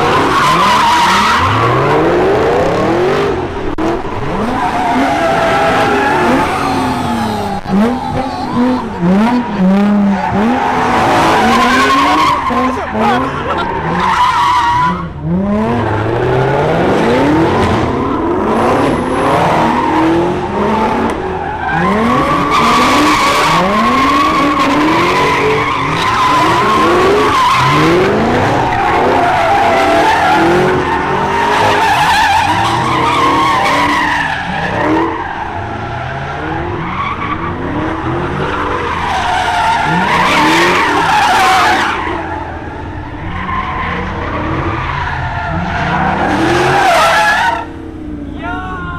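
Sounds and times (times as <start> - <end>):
car engines revving: 0.0 - 48.9
tyres squealing: 4.4 - 15.1.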